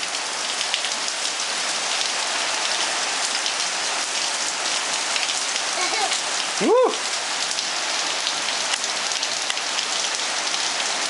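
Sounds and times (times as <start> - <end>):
heavy rain pouring: 0.0 - 11.0
raindrops splashing on hard surfaces: 0.0 - 11.0.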